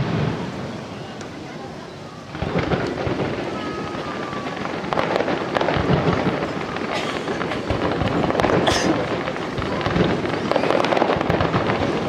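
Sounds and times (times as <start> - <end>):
fireworks bangs and crackling: 0.0 - 12.0
fireworks hiss: 0.0 - 12.0.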